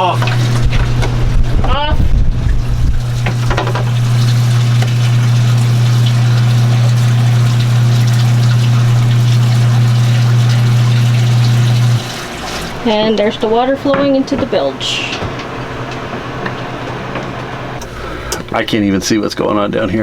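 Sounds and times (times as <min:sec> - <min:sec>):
water pouring: 0:00.0 - 0:13.4
water pump humming: 0:00.0 - 0:18.7.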